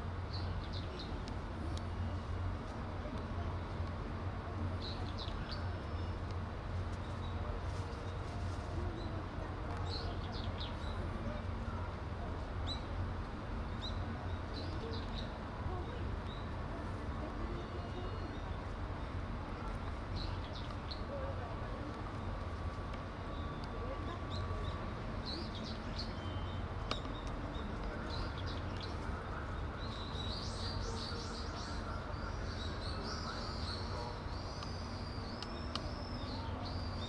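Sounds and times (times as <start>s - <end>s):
small birds chirping: 0.2s - 2.3s, 4.6s - 12.0s, 13.6s - 37.0s.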